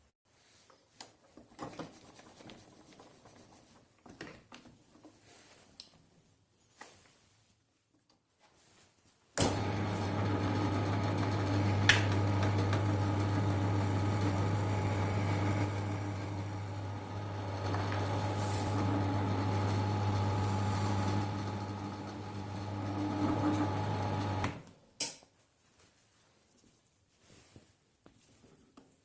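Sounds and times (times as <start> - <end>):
electric motor humming: 9.5 - 24.5.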